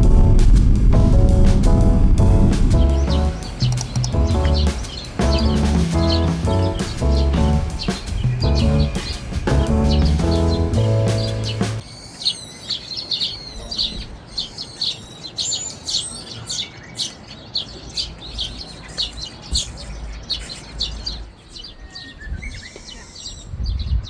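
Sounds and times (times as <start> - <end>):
low steady rumble: 0.0 - 11.8
songbirds chirping: 0.0 - 24.0.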